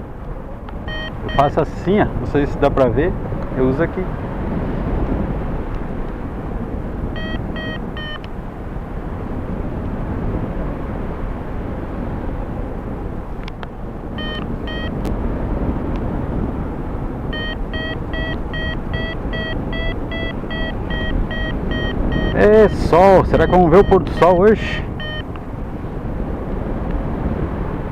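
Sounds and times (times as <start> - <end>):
wind rushing over microphone: 0.0 - 27.9
variometer beeping: 0.8 - 1.6, 7.0 - 8.4, 14.2 - 15.1, 17.2 - 25.5.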